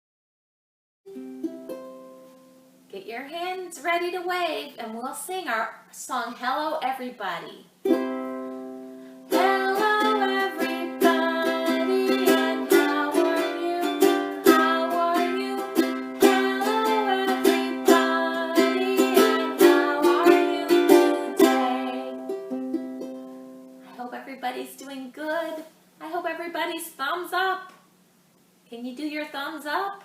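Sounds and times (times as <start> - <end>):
acoustic string instrument strummed: 1.1 - 2.9, 7.8 - 24.0.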